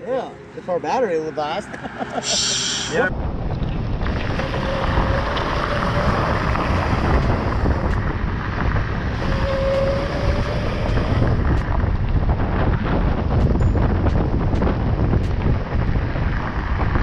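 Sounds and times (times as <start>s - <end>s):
wind buffeting microphone: 2.6s - 17.0s
electric motor whine: 4.0s - 12.4s.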